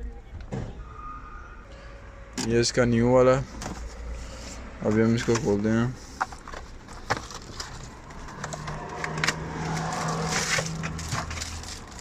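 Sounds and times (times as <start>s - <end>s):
plastic packaging crinkling and tearing: 9.1s - 12.0s.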